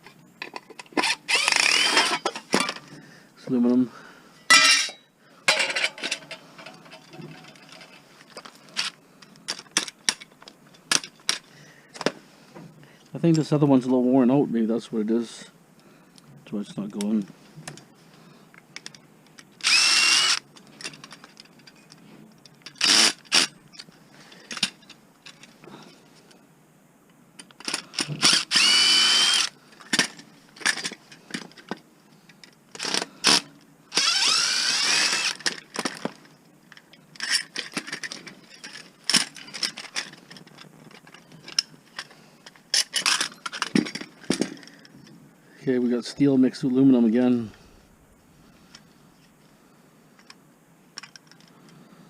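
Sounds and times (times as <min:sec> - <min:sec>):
power drill whining: 0:01.0 - 0:02.3, 0:19.6 - 0:20.4, 0:22.8 - 0:23.5, 0:27.9 - 0:29.6, 0:32.8 - 0:35.4.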